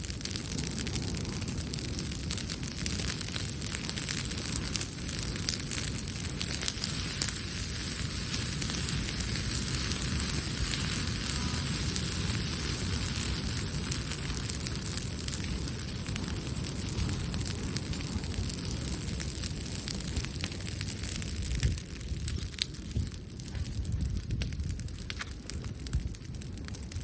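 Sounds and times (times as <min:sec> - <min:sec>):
campfire crackling and popping: 0:00.0 - 0:27.0.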